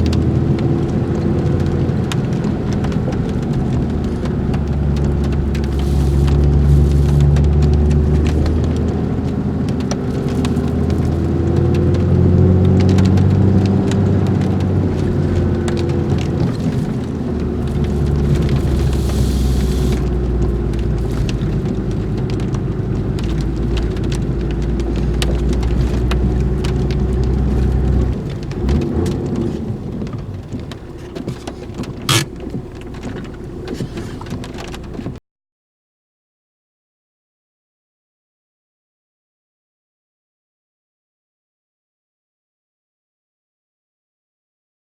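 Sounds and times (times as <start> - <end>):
patter of rain-like noise: 0.0 - 35.2
vehicle engine droning: 0.0 - 35.2.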